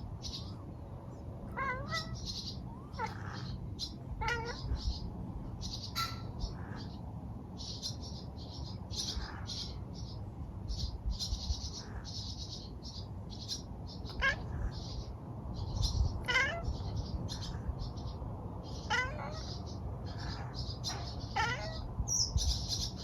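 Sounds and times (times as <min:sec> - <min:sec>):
cat chattering: 0:01.4 - 0:07.0, 0:14.0 - 0:18.1, 0:18.7 - 0:23.0.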